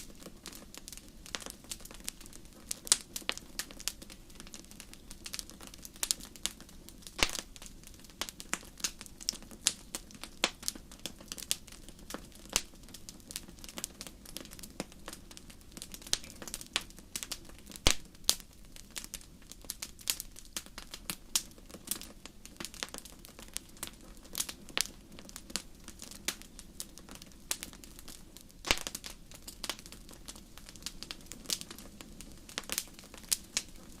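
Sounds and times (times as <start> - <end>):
soft steady hiss: 0.0 - 34.0
wood fire crackling: 0.0 - 34.0
sharp pops: 7.2 - 7.5, 17.8 - 18.4, 28.6 - 29.1.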